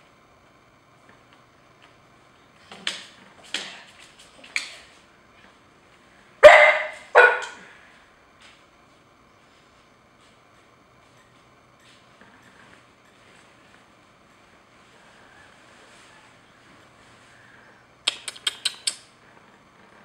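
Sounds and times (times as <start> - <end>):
dog barking: 6.4 - 7.6.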